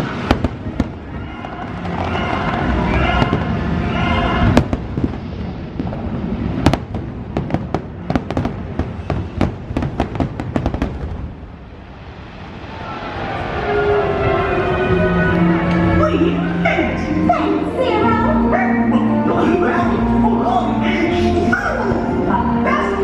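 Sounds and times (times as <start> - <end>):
fireworks bangs and crackling: 0.0 - 12.8.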